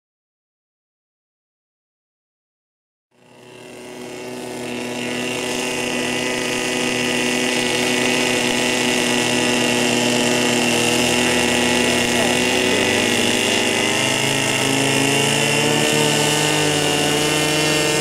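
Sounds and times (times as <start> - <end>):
airboat engine and propeller: 3.1 - 18.0.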